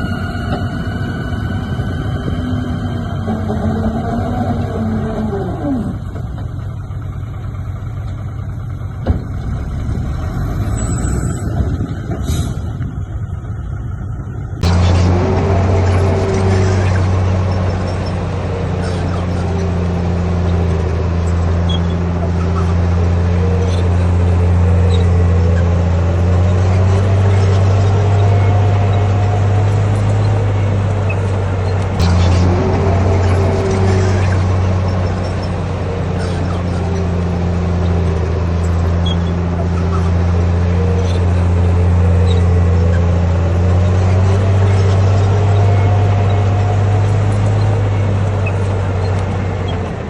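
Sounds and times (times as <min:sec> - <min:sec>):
diesel engine low rumble: 0:00.0 - 0:50.0
falling music sting: 0:32.0 - 0:35.1.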